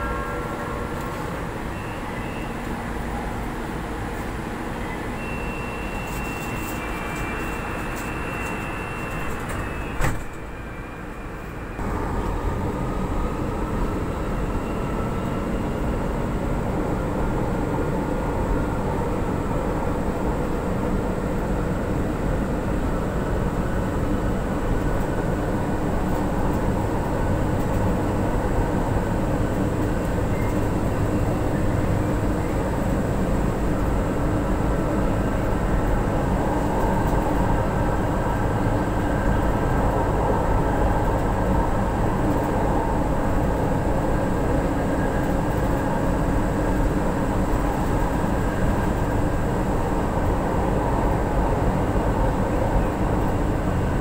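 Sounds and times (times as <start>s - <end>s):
steady high tone: 0.0s - 3.5s
train rumbling: 0.0s - 54.0s
sliding doors shutting: 7.9s - 10.4s.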